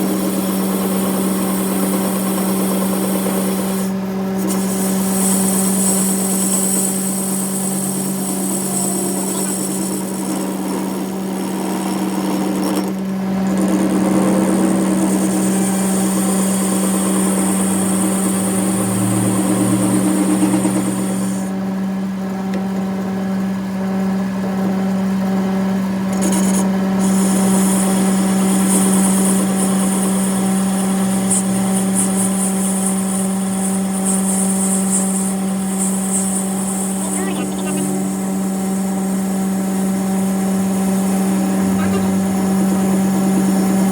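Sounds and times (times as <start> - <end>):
workshop machine hum: 0.0 - 43.9.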